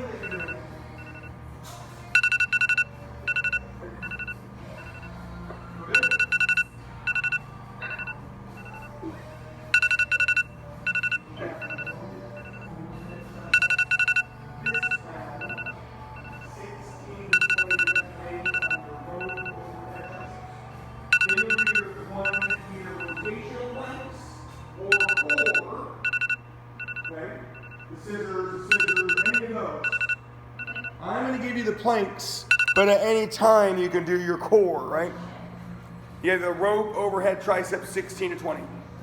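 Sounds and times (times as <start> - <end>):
loud high electronic beeps: 2.2 - 5.1, 5.9 - 9.0, 9.7 - 16.7, 17.4 - 20.3, 21.1 - 23.4, 24.8 - 27.8, 28.7 - 30.9, 32.5 - 33.0
soft single beeps: 2.2 - 5.2, 5.8 - 9.2, 9.8 - 16.6, 17.3 - 20.4, 21.1 - 23.3, 24.9 - 27.9, 28.7 - 31.0, 32.5 - 32.8
faint background murmur: 35.0 - 36.9.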